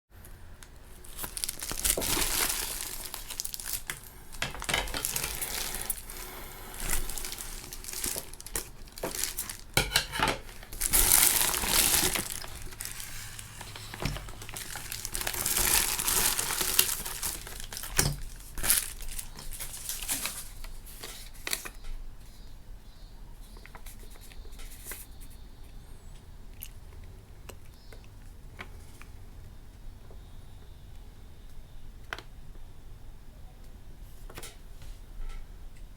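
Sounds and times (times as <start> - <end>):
plastic packaging crinkling: 0.6 - 21.8.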